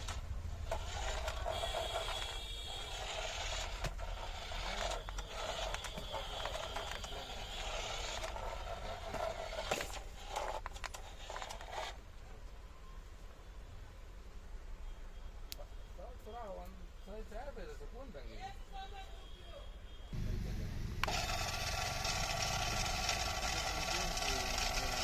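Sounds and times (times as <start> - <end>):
small electric motor whirring: 0.0 - 12.0, 20.6 - 25.0
wheels scraping over ground: 0.0 - 12.0, 21.0 - 25.0.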